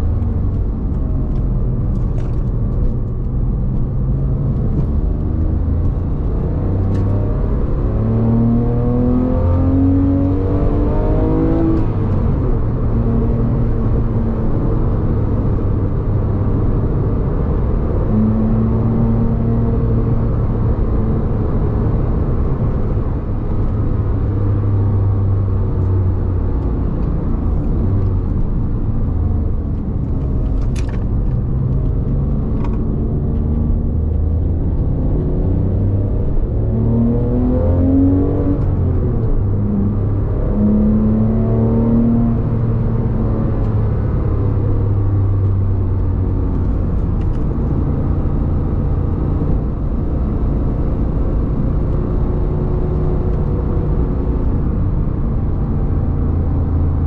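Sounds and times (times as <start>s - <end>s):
tyre and road noise: 0.0s - 57.0s
car engine running: 17.7s - 37.4s.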